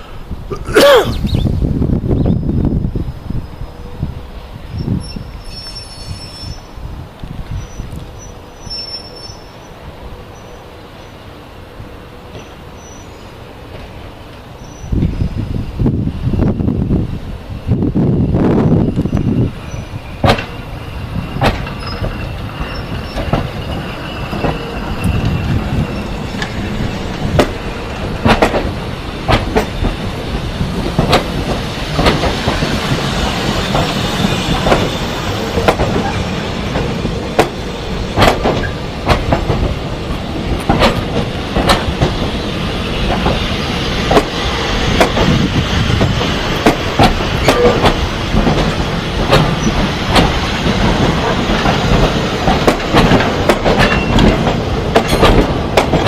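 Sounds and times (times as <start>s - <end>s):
train rumbling along rails: 0.0s - 56.0s
wheels clicking over rail joints: 19.0s - 56.0s.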